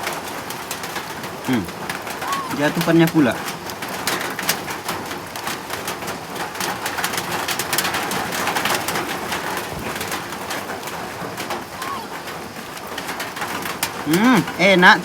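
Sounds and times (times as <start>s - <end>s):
rain falling: 0.0s - 15.0s
bird cooing: 2.2s - 2.8s, 11.7s - 12.2s.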